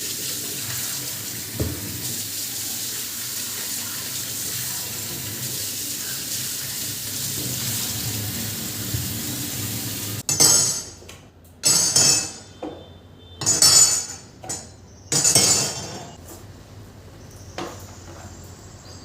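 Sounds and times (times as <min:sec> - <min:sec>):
tap running into sink: 0:00.6 - 0:02.2, 0:07.2 - 0:10.2
glass and dishes clinking: 0:10.3 - 0:11.0, 0:11.6 - 0:16.2.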